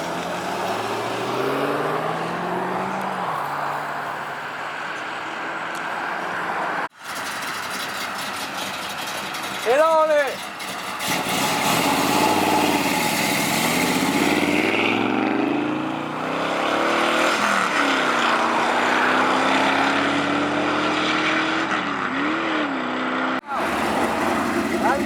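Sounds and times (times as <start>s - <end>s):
car engine revving: 0.0s - 4.0s, 10.4s - 25.0s.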